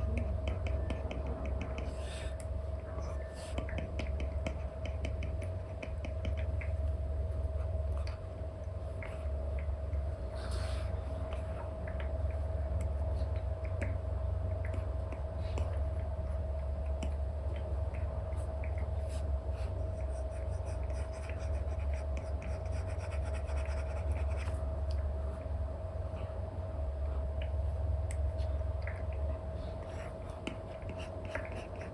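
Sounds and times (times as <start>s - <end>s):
steady low hum: 0.0s - 31.9s
stylus scratching and tapping screen: 3.1s - 6.8s, 18.5s - 24.6s, 30.1s - 31.9s.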